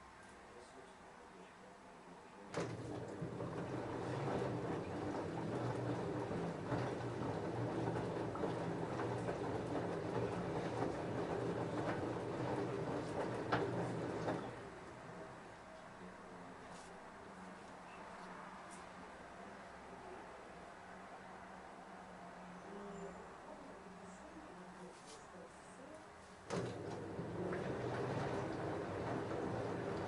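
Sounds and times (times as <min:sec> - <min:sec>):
washing machine motor hum: 0:02.5 - 0:15.5, 0:26.4 - 0:30.0.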